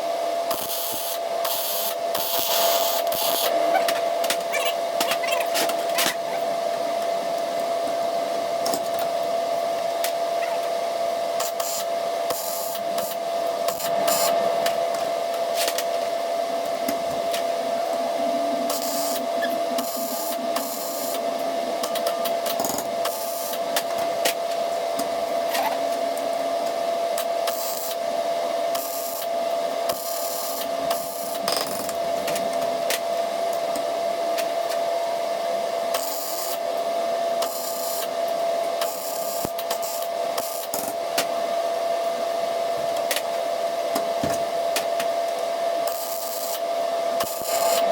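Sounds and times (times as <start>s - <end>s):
crackling welding arc: 0.5s - 4.4s, 13.7s - 15.0s, 47.2s - 47.9s
steady hum: 2.2s - 5.1s, 13.5s - 15.5s, 47.1s - 47.9s.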